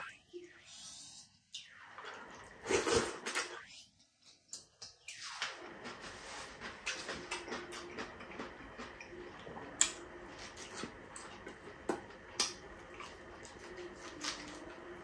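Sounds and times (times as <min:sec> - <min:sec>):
man chewing food: 0:05.6 - 0:15.0.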